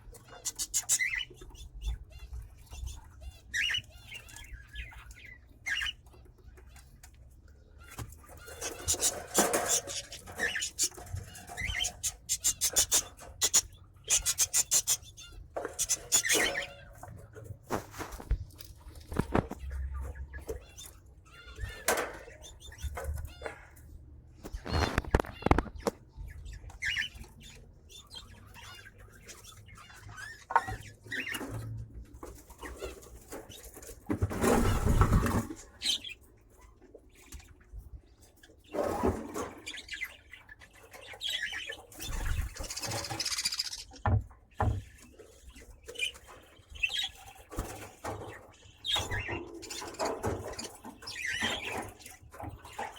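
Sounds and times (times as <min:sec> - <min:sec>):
parrots chattering: 0:00.2 - 0:06.0, 0:08.3 - 0:17.0, 0:41.2 - 0:44.1.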